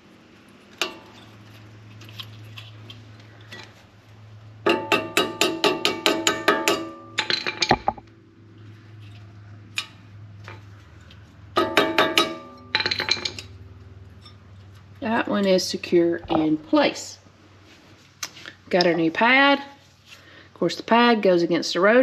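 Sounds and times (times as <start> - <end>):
ringing metal taps: 4.7 - 8.1
steady low hum: 6.2 - 20.4.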